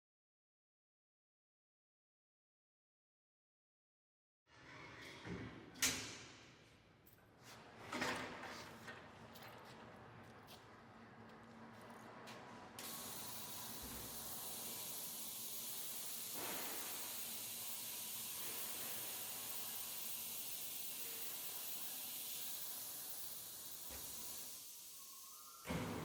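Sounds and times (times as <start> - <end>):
spray wash hissing: 12.8 - 26.0.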